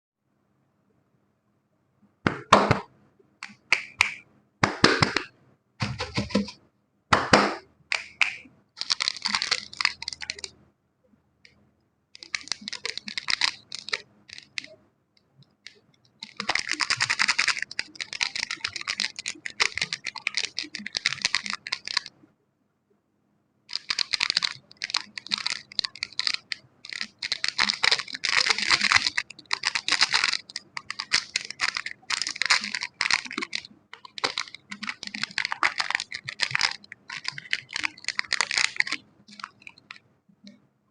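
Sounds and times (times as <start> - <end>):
crisp scratching and crackling: 5.8 - 6.6, 8.3 - 10.6, 12.2 - 14.8, 15.7 - 22.2, 23.7 - 40.0.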